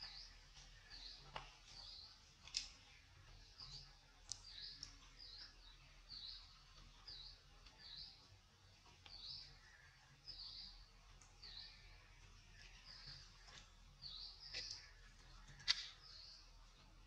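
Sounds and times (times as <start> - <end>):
faint bird chirping: 0.0 - 17.0.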